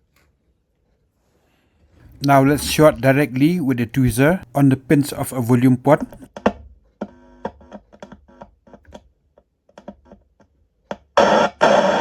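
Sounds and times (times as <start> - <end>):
speaker crackling and popping: 2.0 - 6.3.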